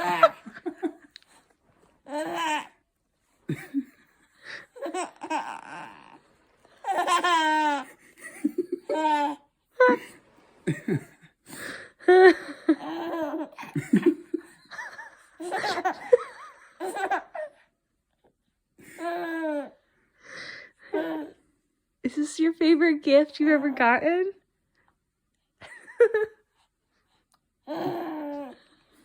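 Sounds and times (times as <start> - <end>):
people laughing and giggling: 8.1 - 8.9, 9.8 - 11.3, 13.7 - 16.9.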